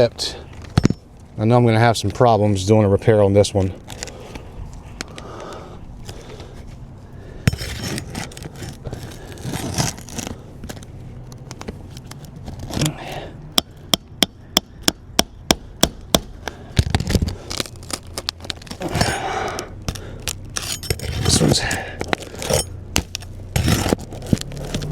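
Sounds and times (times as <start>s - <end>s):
shingles being pried up: 16.4s - 24.9s.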